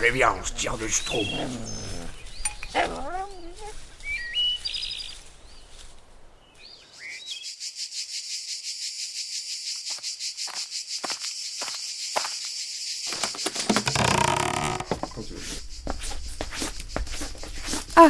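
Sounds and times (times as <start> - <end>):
birds chirping: 0.0 - 18.0
crickets chirring: 6.9 - 18.0.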